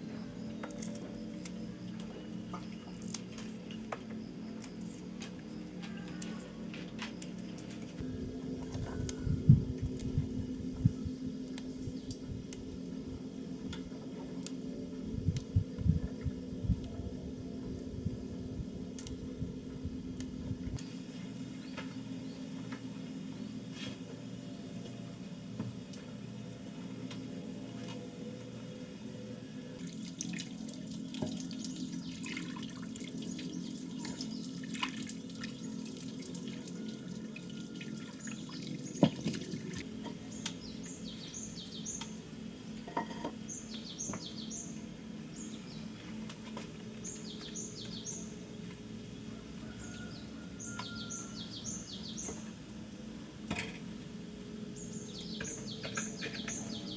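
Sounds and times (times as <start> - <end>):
water running and splashing: 29.8 - 39.8.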